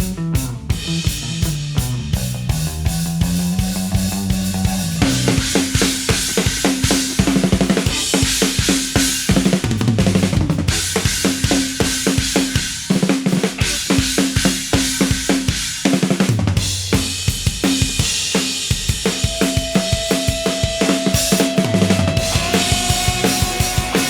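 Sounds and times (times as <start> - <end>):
blues-rock band playing: 0.0 - 24.0.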